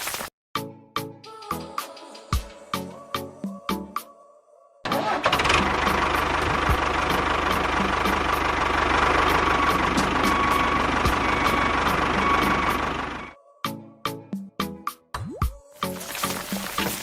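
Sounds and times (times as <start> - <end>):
engine chugging with whine: 4.9 - 13.4.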